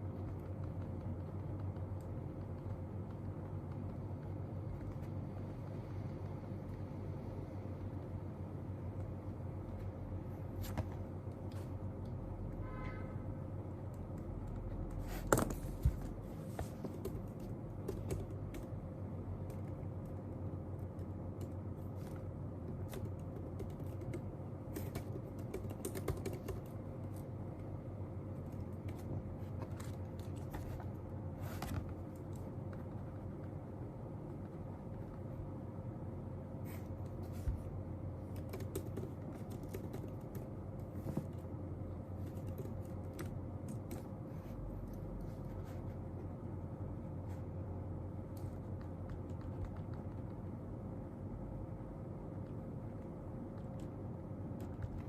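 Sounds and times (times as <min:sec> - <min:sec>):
faint steady hum: 0:00.0 - 0:55.0
typing on computer keyboard: 0:16.8 - 0:18.8, 0:19.4 - 0:27.2, 0:38.2 - 0:40.9, 0:42.2 - 0:44.1, 0:48.4 - 0:50.4.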